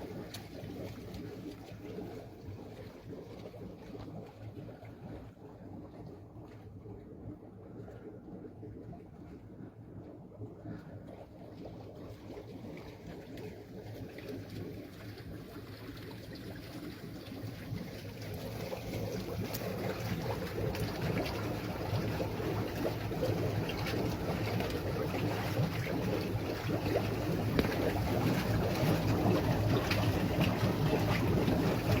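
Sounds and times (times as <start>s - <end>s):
water drips: 0.0s - 5.3s, 7.7s - 32.0s
spring water running and splashing: 12.3s - 32.0s.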